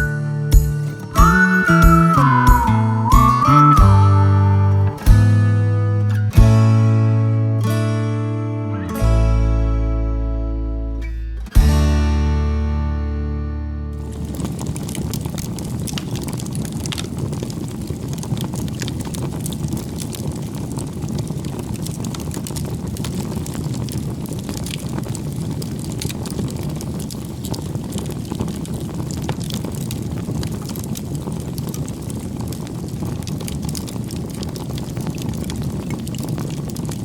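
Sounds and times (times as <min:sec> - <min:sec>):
low rumbling noise: 0:00.0 - 0:07.3, 0:13.9 - 0:28.3.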